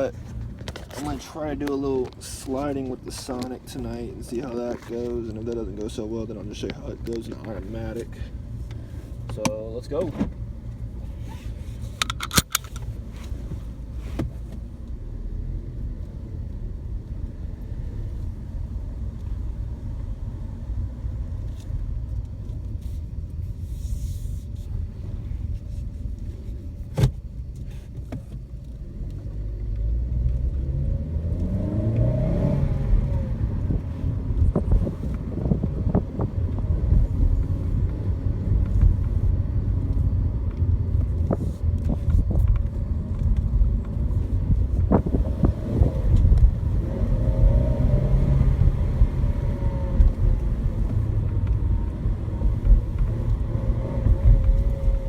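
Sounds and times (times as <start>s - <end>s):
car engine and road rumble: 0.0s - 55.0s
engine speeding up: 28.9s - 41.2s, 41.8s - 55.0s.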